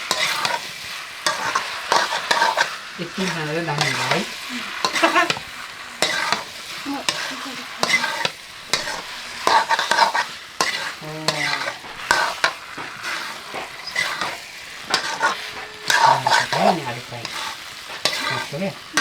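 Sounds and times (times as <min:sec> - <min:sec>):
food sizzling in a pan: 0:00.0 - 0:19.0
spatula scraping a pan: 0:00.0 - 0:19.0.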